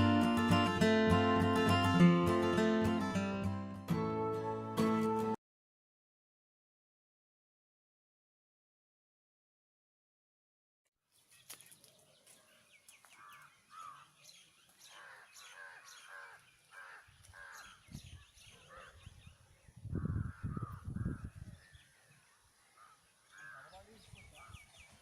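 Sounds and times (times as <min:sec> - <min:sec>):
small birds chirping: 0:11.1 - 0:25.0
crows cawing: 0:13.1 - 0:14.2, 0:14.8 - 0:17.8, 0:18.6 - 0:19.0, 0:20.0 - 0:21.3, 0:22.7 - 0:23.9.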